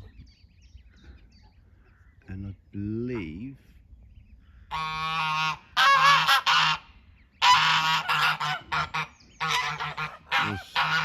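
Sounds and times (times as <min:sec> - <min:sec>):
geese honking: 0:04.7 - 0:11.0.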